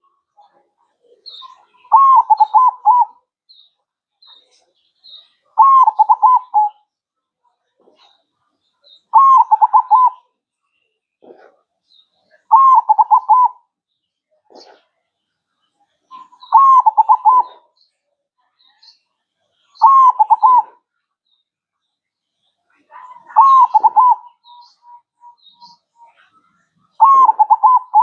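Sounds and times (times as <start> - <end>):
dove cooing: 1.5 - 3.2, 5.6 - 6.8, 9.1 - 10.2, 12.5 - 13.6, 16.1 - 17.7, 19.8 - 20.8, 23.0 - 26.2, 26.9 - 28.0.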